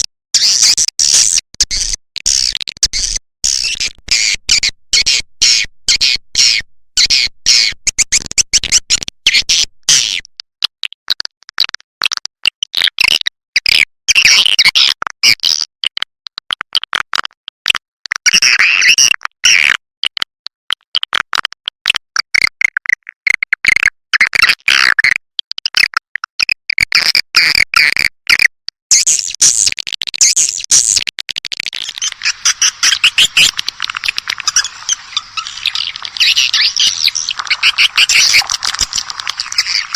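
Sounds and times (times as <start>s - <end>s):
swiftlets twittering and clicking: 31.8s - 39.9s.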